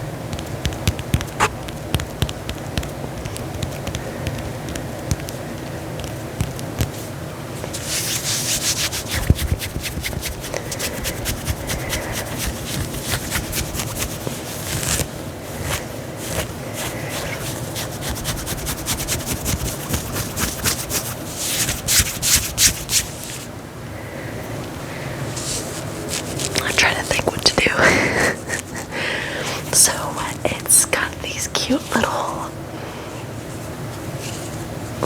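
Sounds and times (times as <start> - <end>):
fabric being scratched by hand: 0.3 - 23.5, 25.3 - 27.5.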